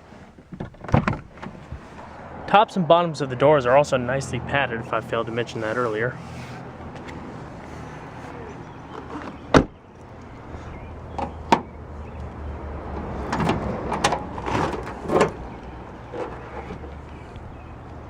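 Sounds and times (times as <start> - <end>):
clunks and rattles: 0.0 - 2.1, 11.1 - 17.2
car door thud: 9.5 - 9.8.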